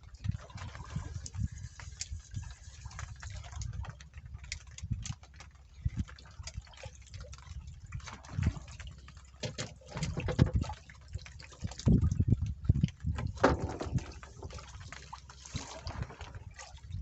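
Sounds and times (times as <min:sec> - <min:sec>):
water splashing and sloshing: 0:00.0 - 0:17.0
steady low rumble: 0:10.2 - 0:17.0.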